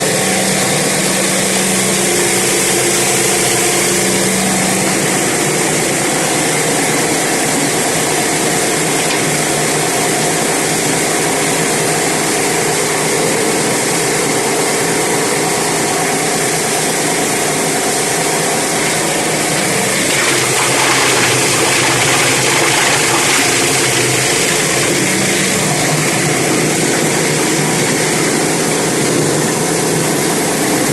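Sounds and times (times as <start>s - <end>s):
plastic grinder grinding bottles: 18.9s - 26.6s.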